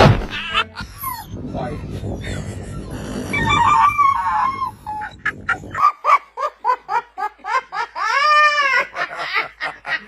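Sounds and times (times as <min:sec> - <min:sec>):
animal wavering cry: 0:00.8 - 0:05.6.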